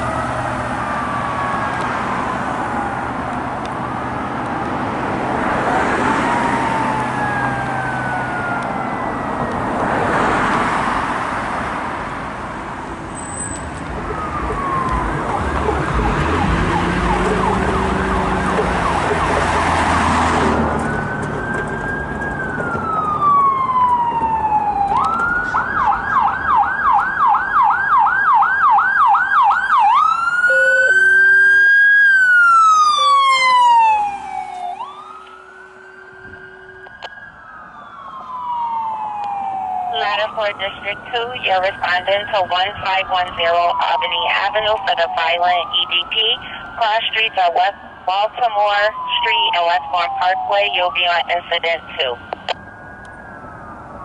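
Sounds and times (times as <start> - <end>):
emergency sirens wailing: 0.0 - 54.0
heavy vehicle engine rumbling: 11.6 - 26.2.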